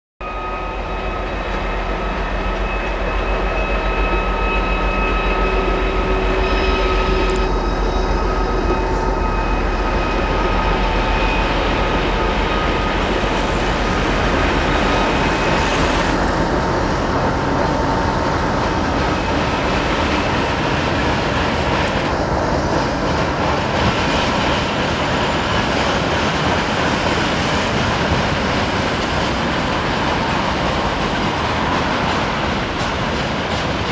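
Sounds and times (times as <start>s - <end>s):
thin steady whines: 0.2s - 22.2s
train rumbling on rails: 0.2s - 33.9s.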